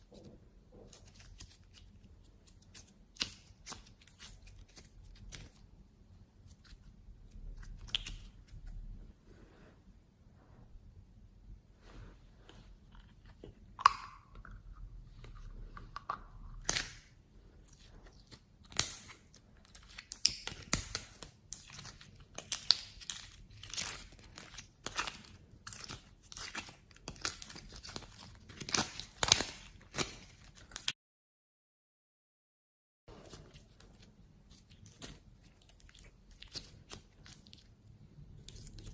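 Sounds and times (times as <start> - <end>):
slime crackling and popping: 7.6 - 8.6, 18.1 - 30.9.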